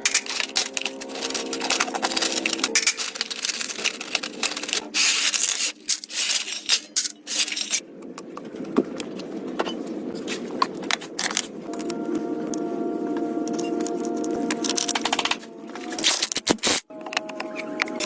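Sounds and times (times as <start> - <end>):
scraping and rubbing: 0.0 - 7.8
parts clicking and clinking: 0.0 - 8.4, 9.6 - 12.6, 13.4 - 18.0.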